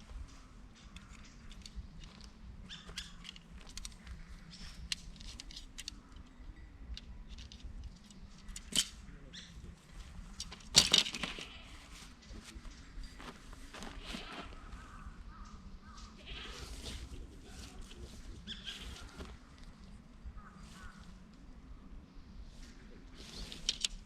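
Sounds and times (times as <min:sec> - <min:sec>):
small clicks and rustles: 0:00.2 - 0:09.0, 0:23.1 - 0:24.0.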